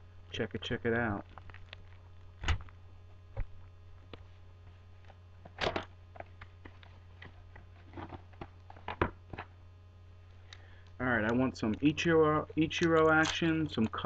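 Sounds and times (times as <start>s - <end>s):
steady low hum: 0.0s - 14.0s
packaging crinkling and tapping: 1.2s - 2.0s, 5.0s - 9.6s.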